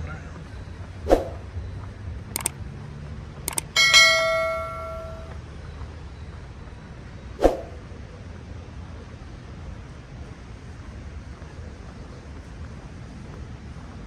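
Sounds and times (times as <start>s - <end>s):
quick clicks: 2.3s - 2.6s, 3.4s - 5.3s
bell-like metallic strike: 3.6s - 5.4s.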